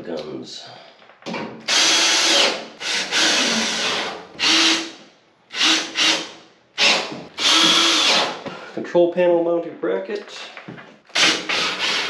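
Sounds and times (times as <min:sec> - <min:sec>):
power drill driving screws: 0:01.7 - 0:08.4, 0:11.1 - 0:12.0.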